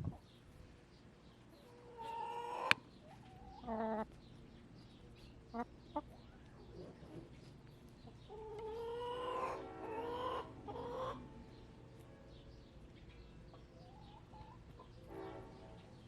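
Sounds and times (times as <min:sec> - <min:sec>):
chicken calling: 0:01.5 - 0:04.1, 0:08.1 - 0:11.2.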